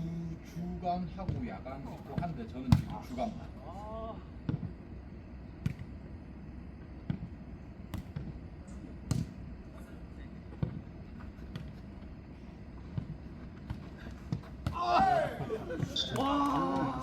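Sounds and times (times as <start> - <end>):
ball kicked and bouncing: 5.6 - 5.9, 9.1 - 9.4, 10.5 - 10.8, 12.9 - 14.8.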